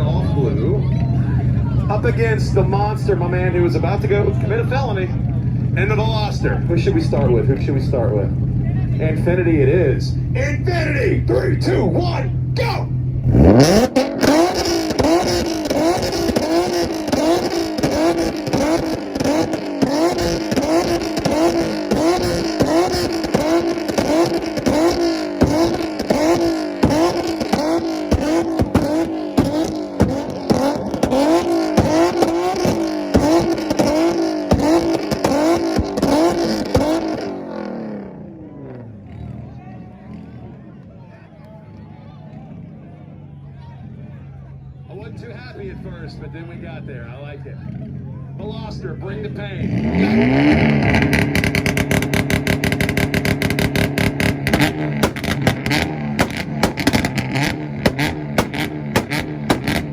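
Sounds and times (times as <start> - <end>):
exhaust cracks: 0.0 - 39.5, 47.8 - 59.9
engine revving hard: 9.0 - 39.4, 49.1 - 59.9.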